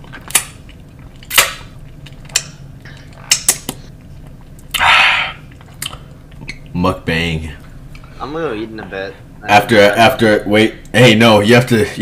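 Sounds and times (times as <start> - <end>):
wet mouth smacks chewing: 0.0 - 6.6.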